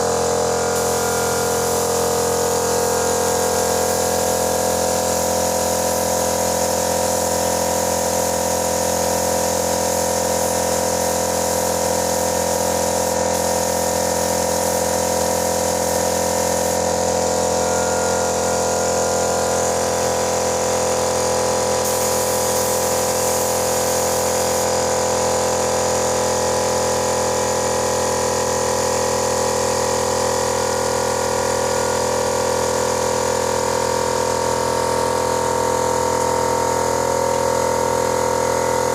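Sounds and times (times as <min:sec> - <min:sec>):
air compressor motor hum: 0:00.0 - 0:38.9
hiss of air spray: 0:00.7 - 0:17.0, 0:21.8 - 0:24.8.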